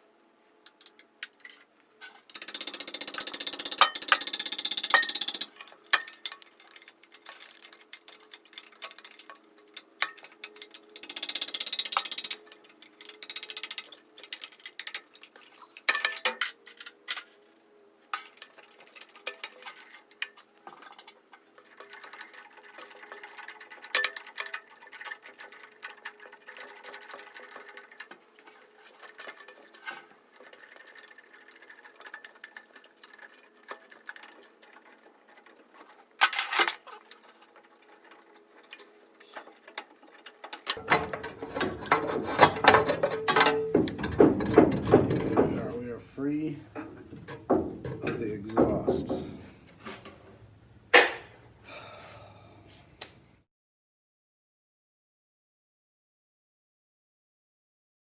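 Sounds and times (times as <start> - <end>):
metal clinks: 2.3 - 9.4
ratchet wrench clicking: 2.3 - 16.2
metal scraping: 18.1 - 50.3.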